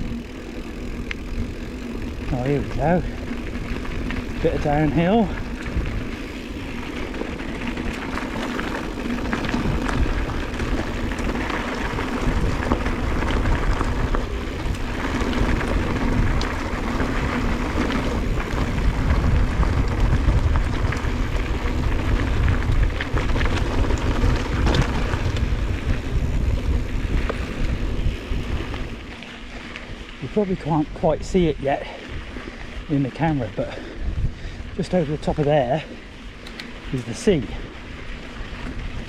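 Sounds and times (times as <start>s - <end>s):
bike rattling clicks: 0.0s - 39.0s
tyres rumbling on rough trail: 0.0s - 39.0s
wind buffeting microphone: 0.0s - 39.0s.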